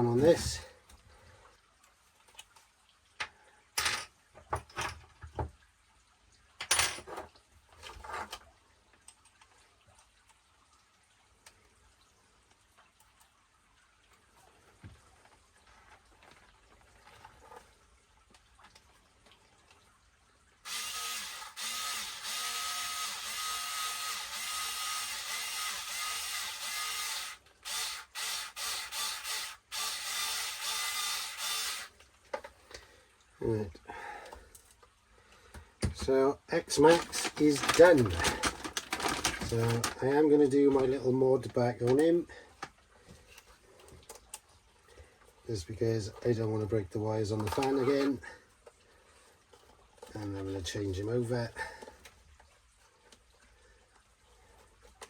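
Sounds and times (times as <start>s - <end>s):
parts and tools clattering: 3.8s - 5.2s, 6.6s - 8.4s, 36.7s - 40.0s
power driver whirring: 20.7s - 31.9s.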